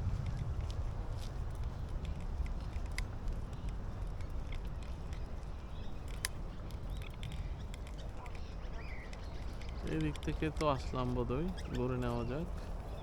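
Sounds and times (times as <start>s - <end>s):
wind rumble on microphone: 0.0s - 13.0s
faint bird calls: 6.8s - 13.0s.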